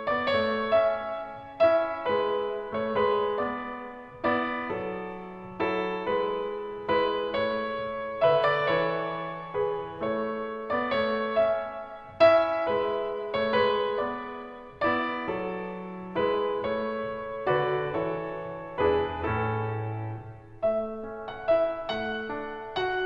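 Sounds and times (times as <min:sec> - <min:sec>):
slow piano melody: 0:00.0 - 0:23.0.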